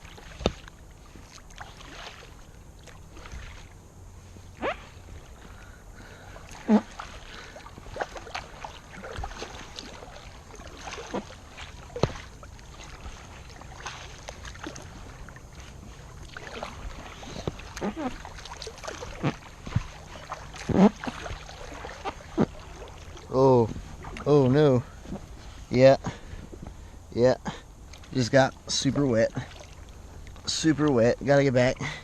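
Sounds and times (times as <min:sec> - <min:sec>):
paddle splashes: 0:00.0 - 0:26.5, 0:27.8 - 0:32.0
short vinyl squeaks: 0:04.6 - 0:04.9, 0:17.8 - 0:18.2, 0:20.6 - 0:21.1
paddle knocking against boat: 0:11.0 - 0:12.3, 0:16.5 - 0:23.0.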